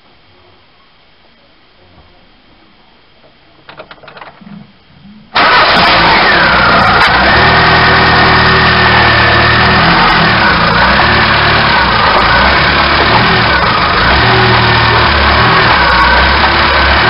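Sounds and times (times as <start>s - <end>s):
car engine running loud: 5.4s - 17.0s
engine cranking: 5.4s - 17.0s.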